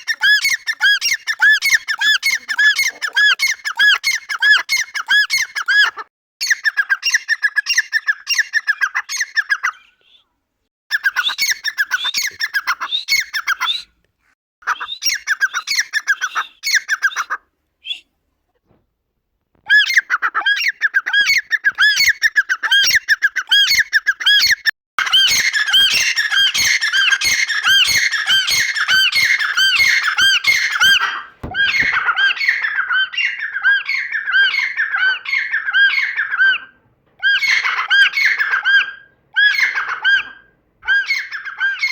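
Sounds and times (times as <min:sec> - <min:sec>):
francolin calling: 0:24.4 - 0:36.3.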